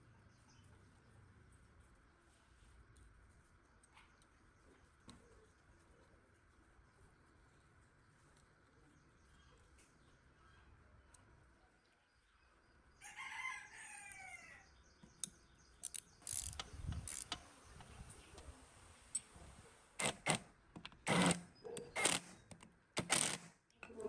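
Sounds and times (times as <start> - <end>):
rooster crowing: 13.0 - 14.7
metal parts clinking: 15.8 - 17.4.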